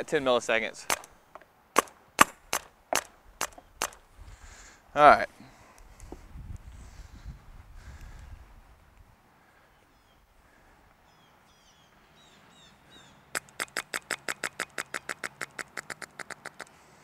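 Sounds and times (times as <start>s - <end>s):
bird calling sharp notes: 11.1s - 16.7s.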